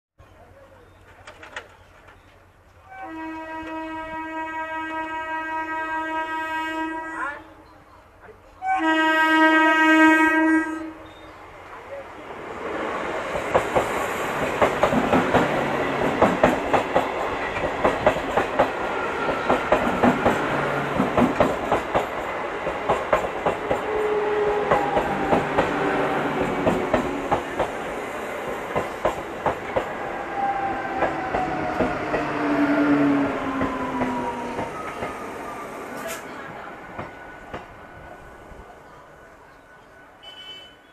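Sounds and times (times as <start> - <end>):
train horn blast: 2.9 - 7.6, 8.6 - 11.3, 40.2 - 40.9
train wheels clattering over rail joints: 13.3 - 30.0.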